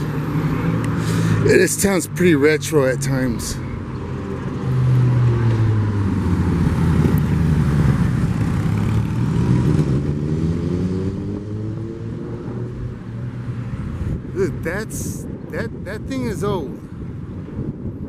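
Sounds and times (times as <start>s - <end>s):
motor vehicle engine hum: 3.2s - 15.0s.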